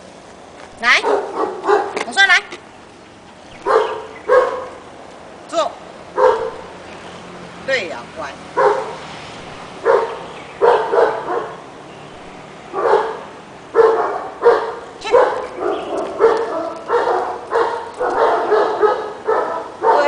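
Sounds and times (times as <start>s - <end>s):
dog barking: 1.0s - 2.1s, 3.6s - 4.8s, 6.2s - 6.7s, 8.6s - 9.1s, 9.8s - 11.6s, 12.7s - 20.0s.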